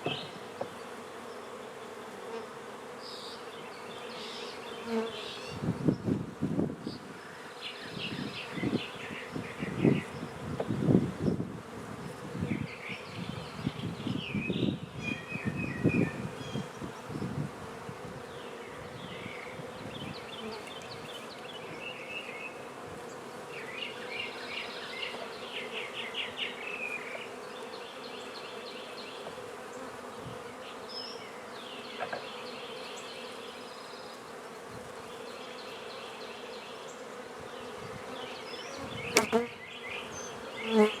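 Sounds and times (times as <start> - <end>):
knocks on hive: 0.0 - 0.8
bees buzzing: 0.0 - 41.0.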